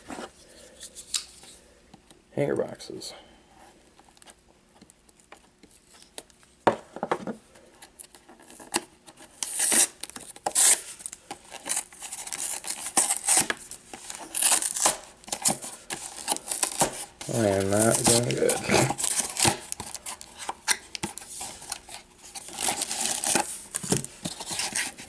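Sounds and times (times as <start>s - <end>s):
cardboard box tearing: 11.6s - 25.0s.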